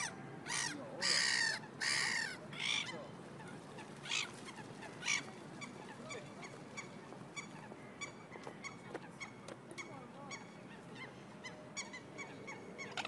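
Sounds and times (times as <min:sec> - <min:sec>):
harsh water bird calls: 0:00.0 - 0:13.0.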